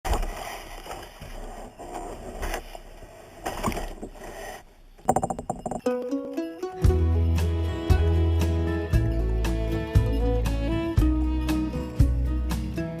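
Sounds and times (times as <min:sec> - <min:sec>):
music: 0:05.8 - 0:13.0.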